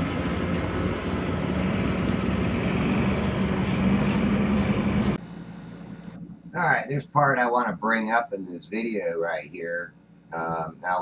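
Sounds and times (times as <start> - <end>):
outdoor rush: 0.0 - 5.2
low hum: 0.0 - 11.0.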